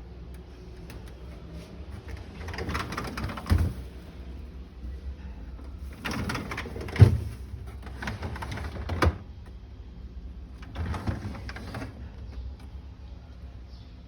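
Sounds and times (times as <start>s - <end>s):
rattling of things handled: 0.8s - 4.2s.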